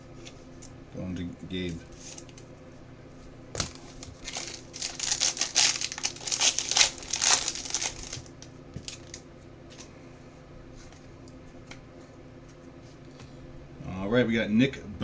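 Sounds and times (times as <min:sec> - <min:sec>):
card pack wrapper crinkling: 0:03.6 - 0:09.2.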